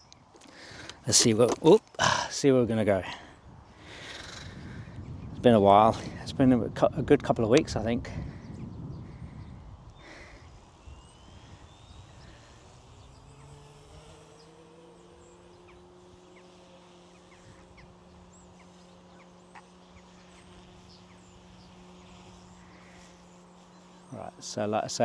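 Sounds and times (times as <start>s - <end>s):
small electric helicopter motor whine: 2.9s - 25.0s
bird chirps: 8.2s - 24.4s.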